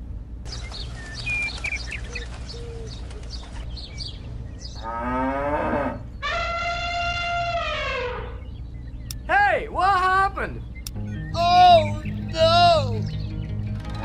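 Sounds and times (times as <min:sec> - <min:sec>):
steady low hum: 0:00.0 - 0:14.0
cow mooing: 0:04.8 - 0:08.4.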